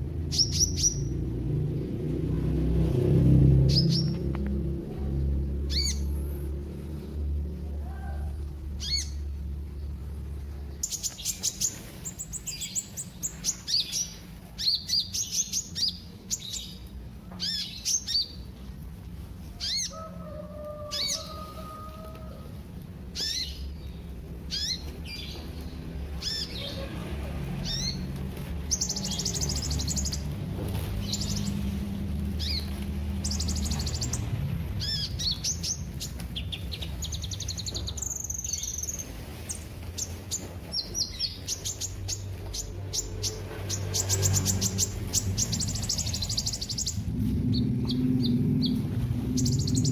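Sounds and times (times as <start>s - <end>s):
low background hum: 0.0s - 49.9s
bird singing high chirps and trills: 0.2s - 1.3s, 5.6s - 6.1s, 8.8s - 18.6s, 19.5s - 20.0s, 23.1s - 26.9s, 27.6s - 30.4s, 31.0s - 49.9s.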